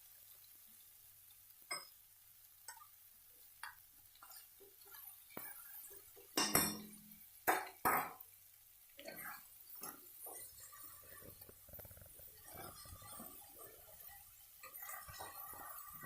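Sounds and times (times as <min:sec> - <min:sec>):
utensils clinking against a pan: 0:01.7 - 0:02.0, 0:03.6 - 0:08.2, 0:09.0 - 0:11.6, 0:12.3 - 0:16.0.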